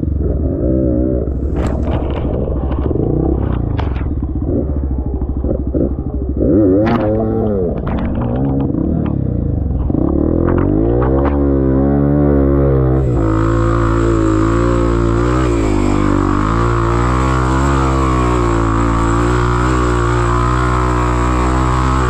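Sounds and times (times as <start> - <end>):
motorcycle engine revving: 0.0 - 22.0
knocks and clatter: 1.4 - 11.6.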